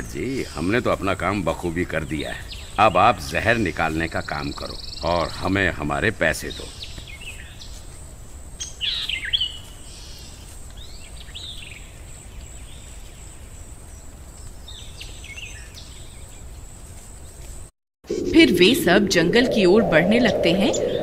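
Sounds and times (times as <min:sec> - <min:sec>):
birds chirping: 0:00.0 - 0:21.0
low rumble: 0:18.1 - 0:21.0.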